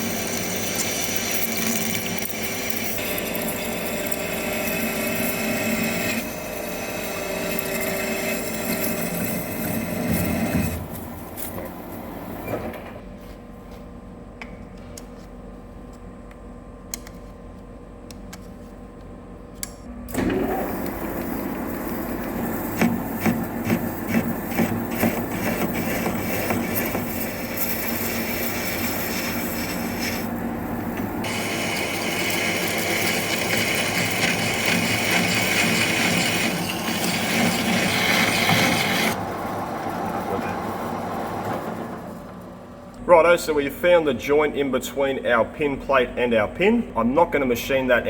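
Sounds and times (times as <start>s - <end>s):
lathe cutting steel: 0.0s - 11.6s, 20.1s - 42.1s.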